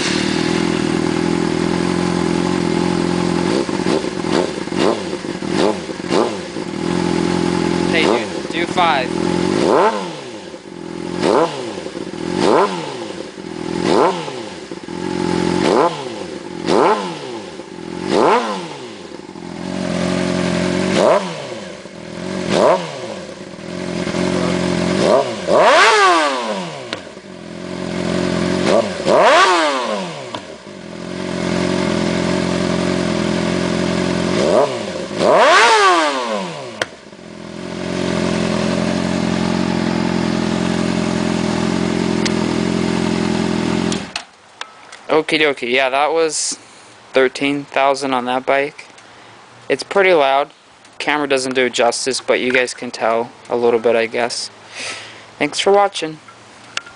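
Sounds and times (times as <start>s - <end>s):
motorcycle engine revving: 0.0s - 44.2s.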